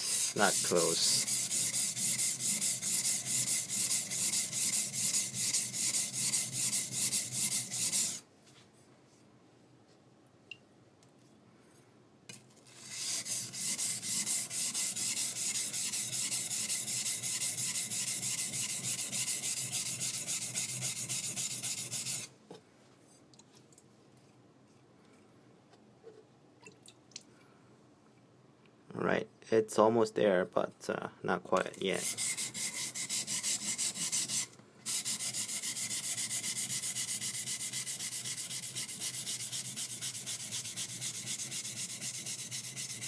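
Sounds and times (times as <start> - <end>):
knife scraping on whetstone: 0.0 - 8.2, 12.7 - 22.3, 31.9 - 43.0.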